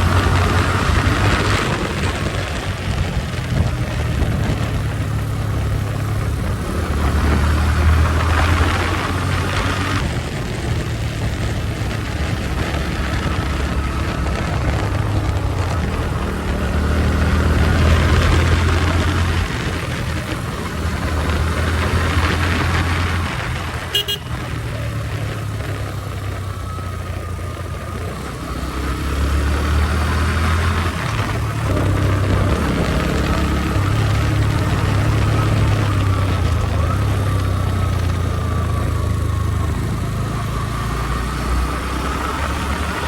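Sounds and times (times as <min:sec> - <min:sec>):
motorcycle engine running: 0:00.0 - 0:43.0
wind rushing over microphone: 0:00.0 - 0:43.0
short horn beep: 0:23.9 - 0:24.5.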